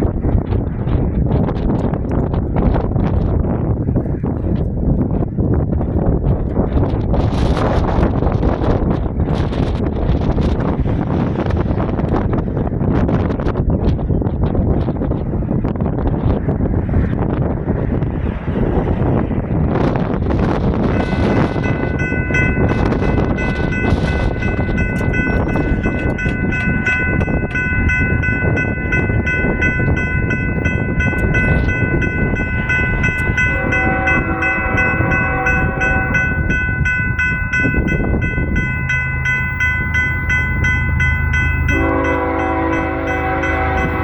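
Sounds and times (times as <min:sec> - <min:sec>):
train rumble: 0:00.0 - 0:44.0
crossing bell dinging: 0:20.5 - 0:44.0
locomotive horn: 0:20.8 - 0:22.0, 0:32.6 - 0:36.9, 0:41.2 - 0:44.0.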